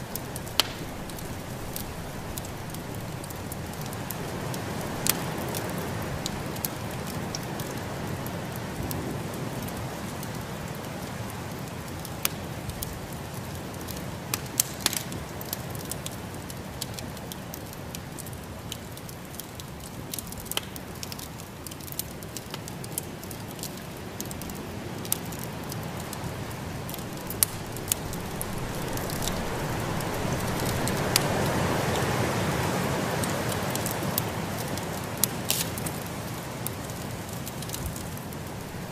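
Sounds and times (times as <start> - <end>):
wood fire crackling: 0.0 - 38.9
snowstorm wind rushing: 26.3 - 32.4.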